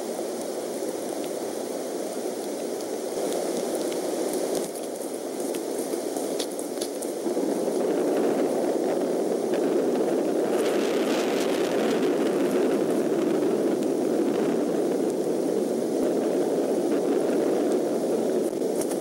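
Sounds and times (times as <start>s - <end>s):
rain hissing on microphone: 0.0s - 19.0s
birds flapping wings: 18.4s - 19.0s.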